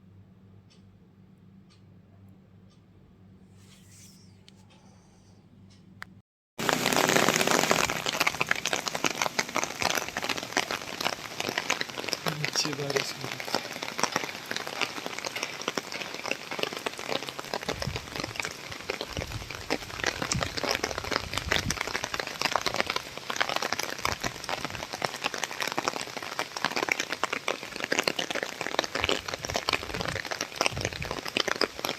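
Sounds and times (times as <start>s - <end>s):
rain pattering on hard surfaces: 6.6s - 31.9s.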